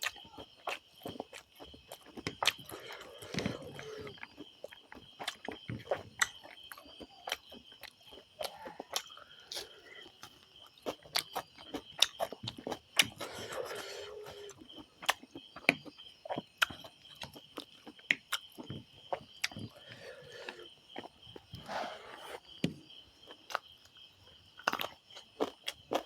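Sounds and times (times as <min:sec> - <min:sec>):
wet chewing clicks and smacks: 0:00.0 - 0:21.6, 0:22.5 - 0:26.0
breathy noise: 0:19.6 - 0:20.8, 0:21.5 - 0:22.6.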